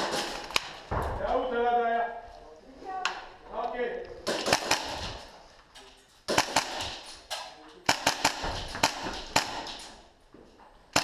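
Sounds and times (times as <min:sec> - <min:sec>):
airsoft gunfire bursts: 0:04.3 - 0:05.2, 0:06.3 - 0:07.0, 0:07.9 - 0:09.7.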